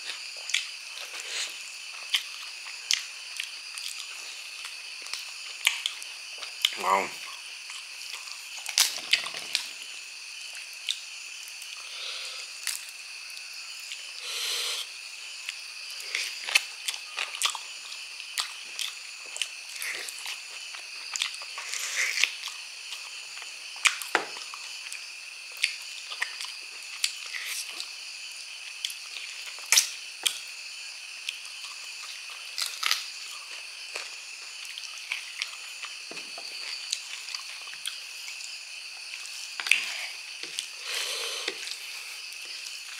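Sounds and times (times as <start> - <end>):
high-pitched insect chirr: 0.0 - 42.9.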